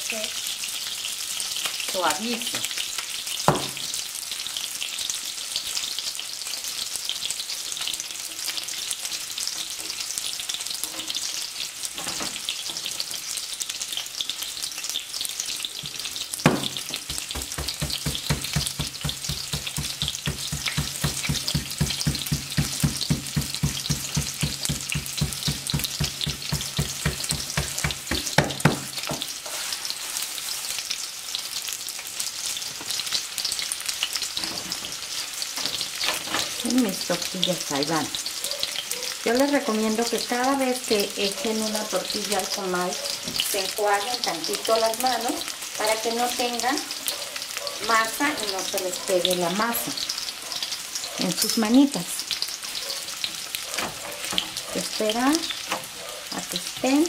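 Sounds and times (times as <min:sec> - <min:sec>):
onion and garlic sizzling: 0:00.0 - 0:57.0
sharp knock: 0:16.5 - 0:29.2.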